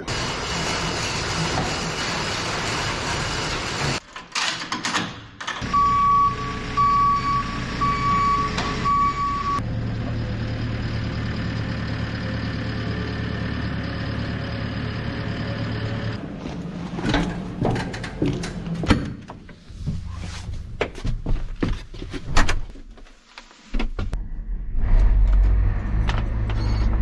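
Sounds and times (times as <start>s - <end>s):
reversing alarm beeps: 5.6s - 9.6s, 26.5s - 27.0s
vehicle engine running: 5.6s - 18.8s.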